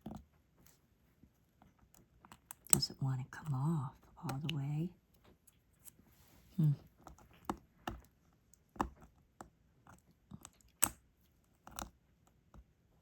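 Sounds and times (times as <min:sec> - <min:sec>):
plastic tweezers clicking: 0:04.2 - 0:04.7.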